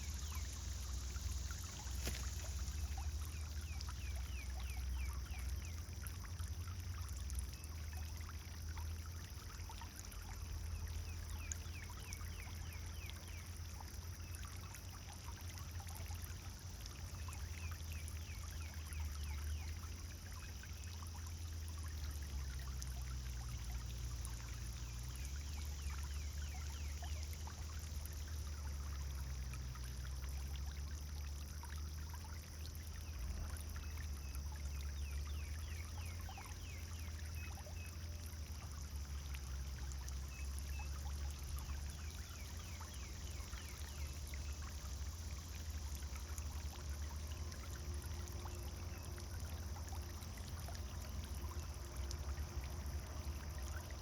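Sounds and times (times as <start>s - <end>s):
fountain splashing and trickling: 0.0s - 54.0s
low constant rumble: 0.0s - 54.0s.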